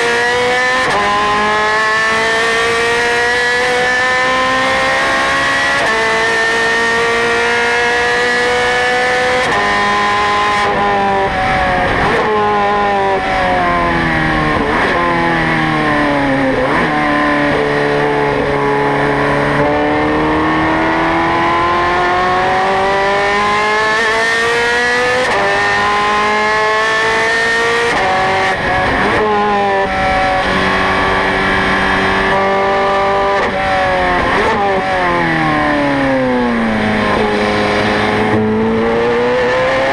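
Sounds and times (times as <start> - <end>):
racing car engine revving: 0.0 - 39.9.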